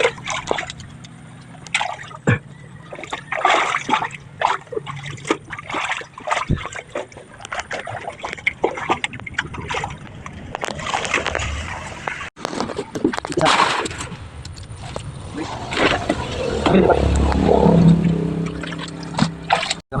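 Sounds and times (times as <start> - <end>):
water splashing and sloshing: 0.0 - 20.0
water trickling: 14.0 - 19.8.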